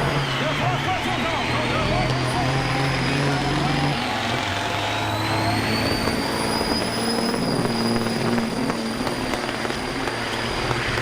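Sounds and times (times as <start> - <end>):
high whine: 0.0 - 11.0
truck diesel engine running: 0.0 - 11.0.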